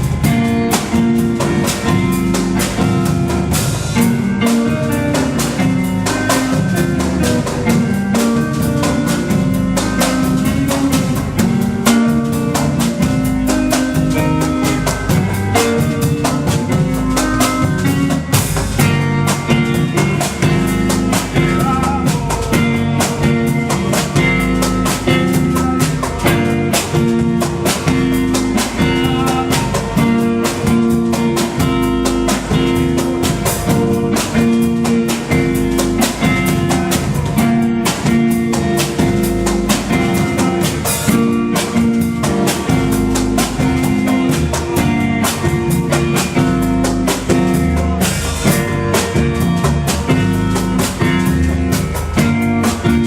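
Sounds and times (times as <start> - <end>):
drum kit beat: 0.0 - 53.0
guitar playing: 0.0 - 53.0.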